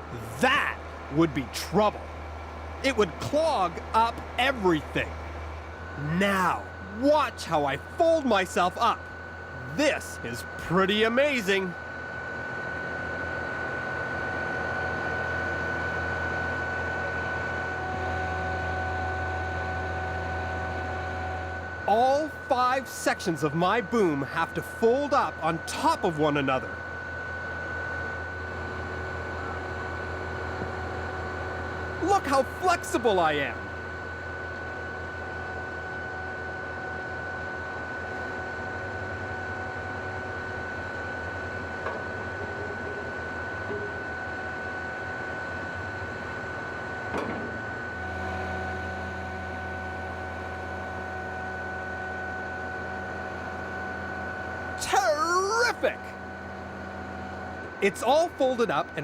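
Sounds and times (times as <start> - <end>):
truck engine low hum: 0.0 - 10.0
concrete pump engine hum: 0.0 - 12.0, 17.8 - 26.9
hydraulic high whine: 0.0 - 59.0.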